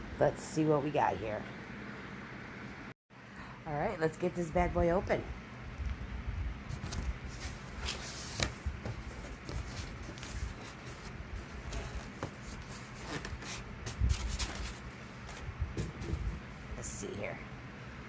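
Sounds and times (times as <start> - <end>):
cardboard rustling and scraping: 6.7 - 16.5.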